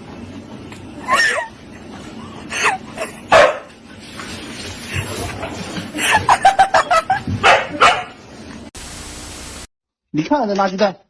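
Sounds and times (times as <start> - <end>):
dog barking and yelping: 7.4 - 8.2.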